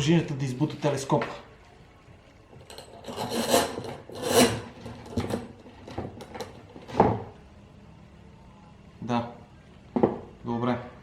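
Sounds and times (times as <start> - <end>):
scraping of fork parts by hand: 2.6 - 7.0.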